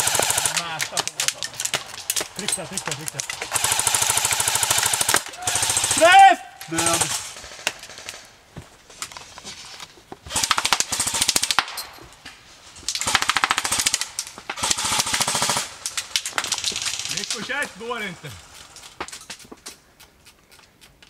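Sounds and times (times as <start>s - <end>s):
airsoft guns firing bursts: 0.0s - 1.5s, 3.1s - 8.3s, 10.3s - 11.8s, 13.0s - 18.1s.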